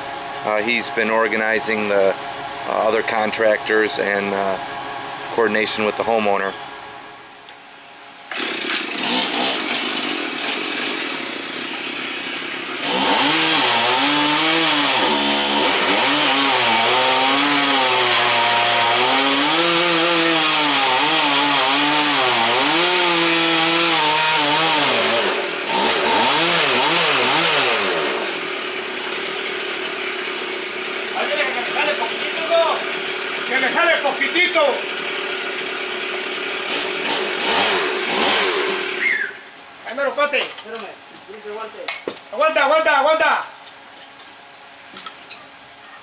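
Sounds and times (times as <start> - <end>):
chainsaw cutting wood: 8.3 - 39.3.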